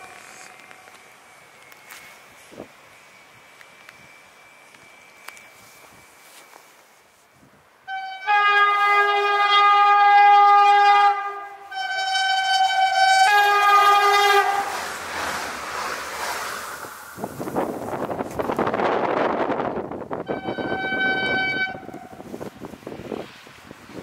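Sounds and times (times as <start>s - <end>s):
train rushing past: 0.0s - 6.4s, 11.2s - 24.0s
train chord horn blasts: 7.9s - 14.9s, 20.2s - 22.4s.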